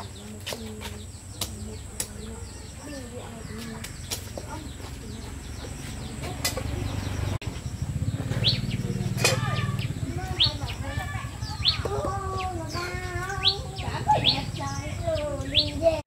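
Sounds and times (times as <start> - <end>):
birds chirping: 0.0 - 16.0
low steady rumble: 1.0 - 16.0.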